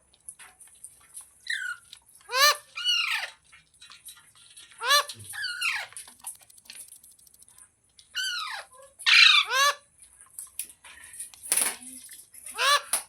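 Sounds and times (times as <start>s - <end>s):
parrot shrill calls: 1.5s - 3.4s, 4.8s - 5.9s, 8.2s - 9.8s.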